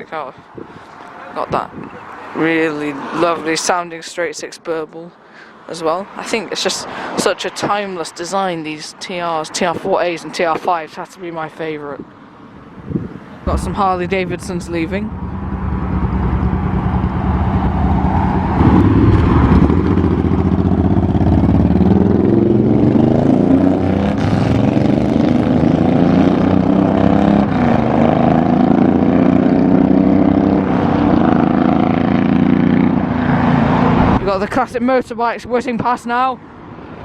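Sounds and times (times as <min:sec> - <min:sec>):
motorcycles revving and pulling away: 0:11.6 - 0:35.0.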